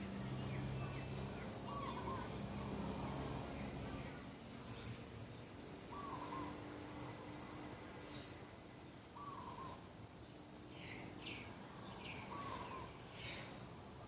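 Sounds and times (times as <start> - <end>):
birds chirping: 0.0 - 6.7, 9.2 - 14.0
doves cooing: 1.7 - 2.4, 12.3 - 12.9.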